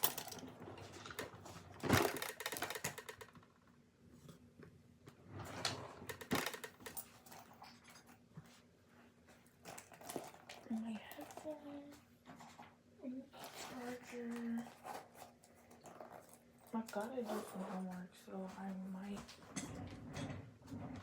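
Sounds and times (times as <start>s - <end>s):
small objects clicking and knocking: 0.0s - 3.6s, 6.1s - 8.0s.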